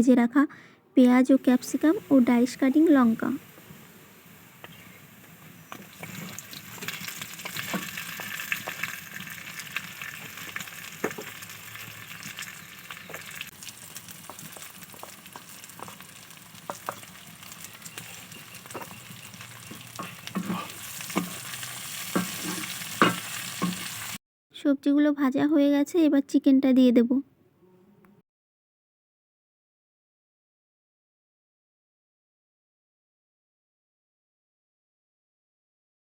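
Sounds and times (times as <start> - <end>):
vegetables sizzling in hot oil: 1.3 - 24.2
spatula scraping and knocking a pan: 5.7 - 11.5, 14.2 - 24.0.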